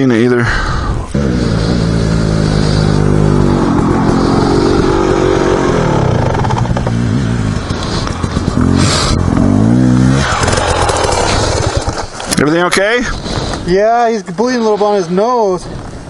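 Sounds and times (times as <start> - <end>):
dirt bike engine revving: 1.1 - 12.3.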